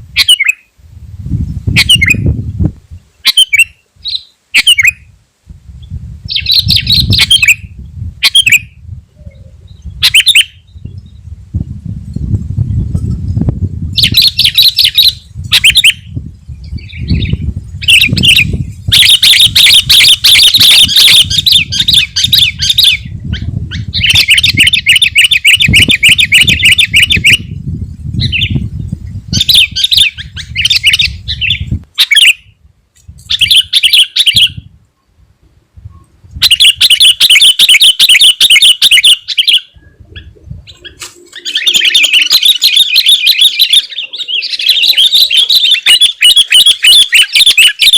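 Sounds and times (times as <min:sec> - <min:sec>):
bulbul chattering song: 0:03.2 - 0:05.1, 0:06.3 - 0:10.7, 0:16.8 - 0:27.5, 0:36.4 - 0:47.9.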